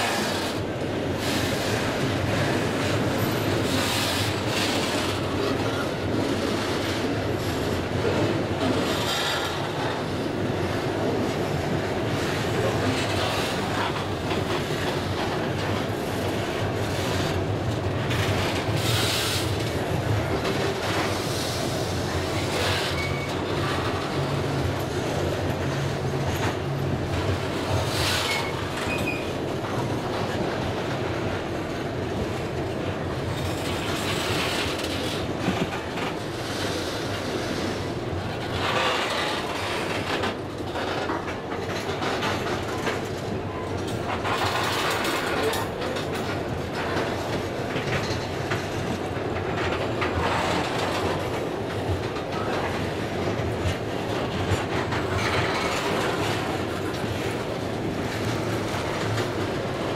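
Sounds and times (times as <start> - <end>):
freight train wheels on rail: 0.0 - 59.9
wheels clicking over rail joints: 33.1 - 59.9.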